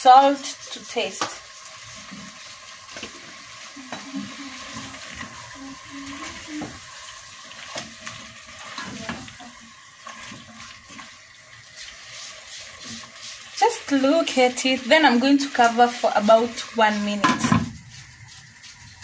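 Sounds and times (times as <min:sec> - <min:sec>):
stir fry sizzling in a pan: 0:00.0 - 0:19.0
spatula scraping and knocking pan: 0:10.0 - 0:19.0.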